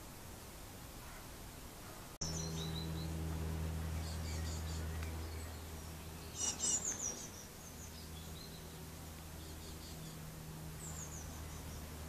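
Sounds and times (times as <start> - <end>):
steady low hum: 0.0 - 12.0
birds chirping: 1.0 - 12.0.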